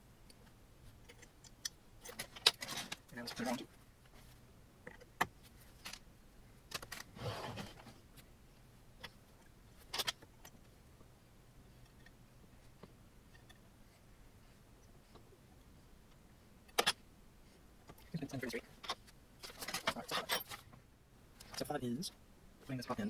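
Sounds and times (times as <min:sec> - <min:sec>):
metal parts and tools clinking: 0:18.8 - 0:20.6.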